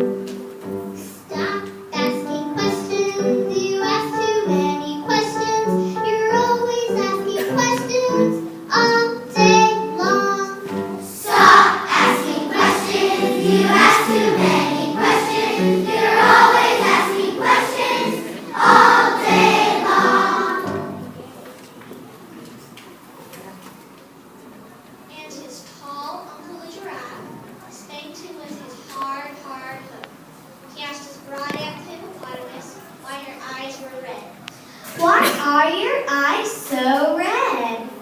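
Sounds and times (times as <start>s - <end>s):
children singing together: 1.3s - 21.1s.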